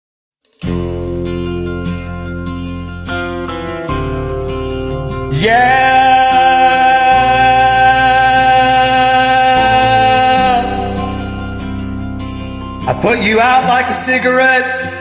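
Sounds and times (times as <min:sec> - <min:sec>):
country backing track with guitar: 0:00.6 - 0:15.0
person singing long note: 0:05.3 - 0:11.4.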